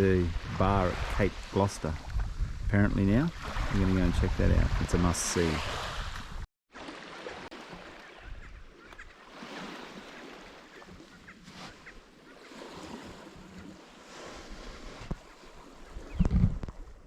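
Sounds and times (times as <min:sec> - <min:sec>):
small waves washing on beach: 0:00.0 - 0:02.3, 0:03.3 - 0:16.2
wind on microphone: 0:00.0 - 0:06.4, 0:15.8 - 0:17.0.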